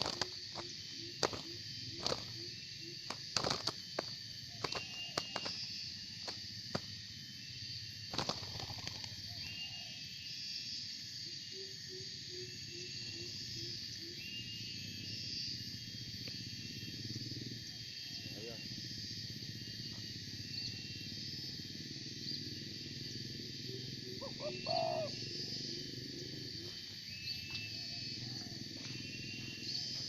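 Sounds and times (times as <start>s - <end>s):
small birds chirping: 0.0s - 6.9s
insects droning: 0.0s - 30.0s
bird hooting: 23.7s - 25.4s.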